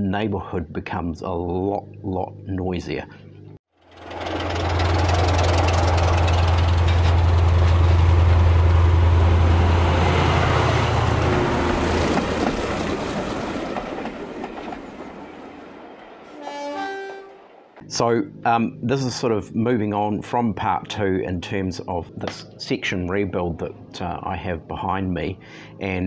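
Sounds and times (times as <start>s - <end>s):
diesel engine drone: 3.1s - 12.9s, 17.3s - 26.0s
rail and wheel noise: 3.9s - 17.9s.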